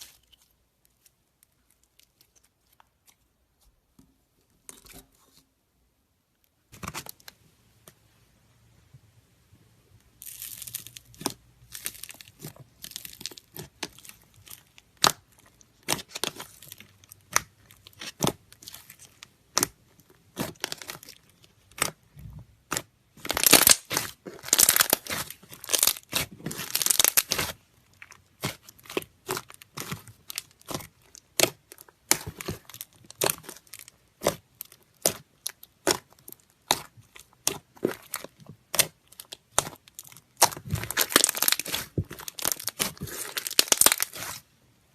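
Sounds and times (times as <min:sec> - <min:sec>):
slime crackling and popping: 0:10.2 - 0:44.4.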